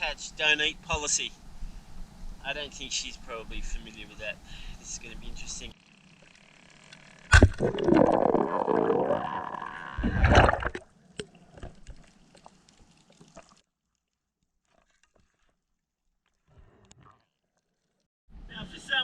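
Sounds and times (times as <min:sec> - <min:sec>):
water sloshing and gurgling: 0:06.1 - 0:18.1.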